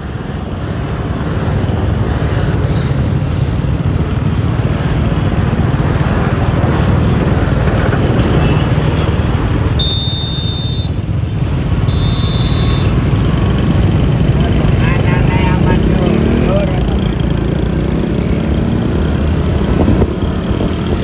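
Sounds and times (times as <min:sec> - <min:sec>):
wind rumble: 0:00.0 - 0:09.8, 0:10.8 - 0:21.0
road noise: 0:00.0 - 0:21.0
scooter engine cruising: 0:00.0 - 0:21.0
thin high tone: 0:09.8 - 0:11.0, 0:11.9 - 0:13.0.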